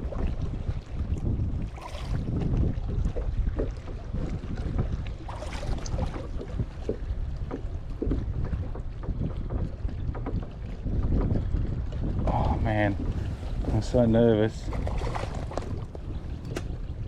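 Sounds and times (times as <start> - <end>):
water slapping kayak hull: 0.0 - 17.0
wind buffeting microphone: 0.0 - 17.0.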